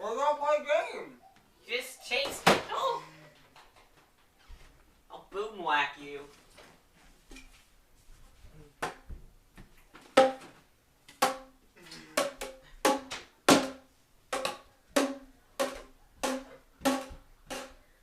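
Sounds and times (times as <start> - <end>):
plastic tube hollow bonks: 12.2 - 17.8.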